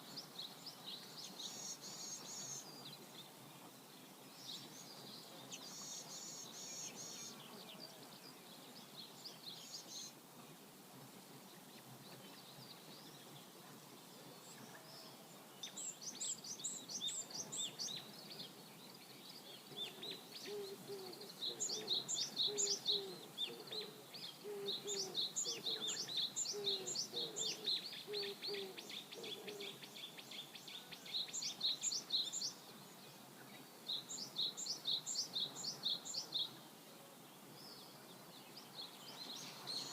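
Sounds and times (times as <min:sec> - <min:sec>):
faint river rush: 0:00.0 - 0:24.4, 0:29.8 - 0:39.9
songbirds chirping: 0:00.0 - 0:39.9
lower repeated bird call: 0:19.8 - 0:32.5.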